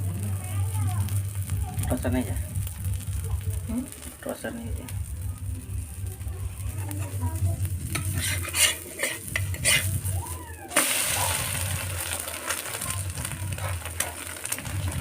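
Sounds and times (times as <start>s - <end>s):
egg sizzling in hot oil: 0.0s - 15.0s
metal utensil scraping a pan: 7.8s - 10.1s.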